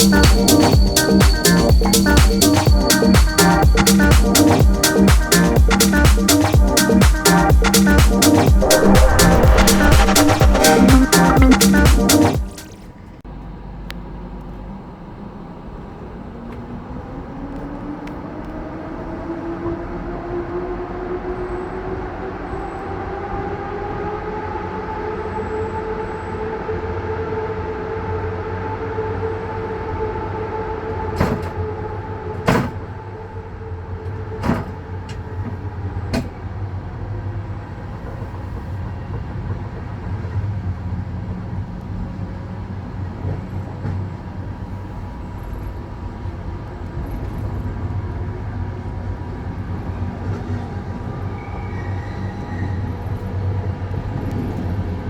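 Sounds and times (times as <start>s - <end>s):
train rumbling: 0.0s - 13.0s
train whine: 0.0s - 13.0s.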